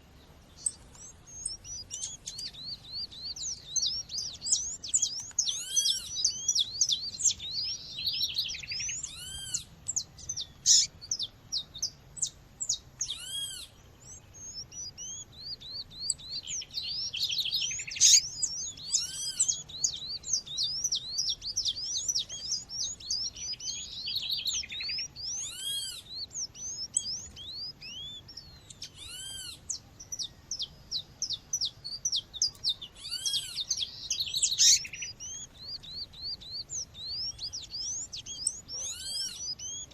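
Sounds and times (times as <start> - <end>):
quick high bird chirps: 13.0 - 39.9.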